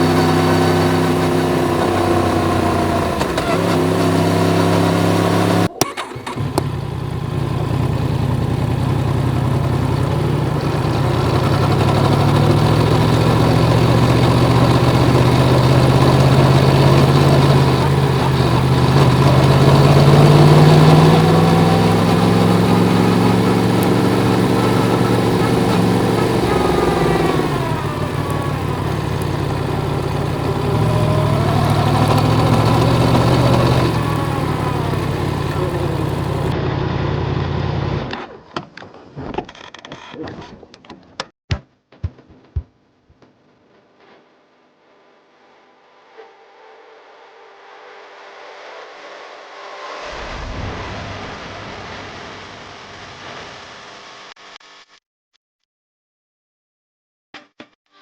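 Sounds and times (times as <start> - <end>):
motorcycle engine running: 0.0 - 37.9.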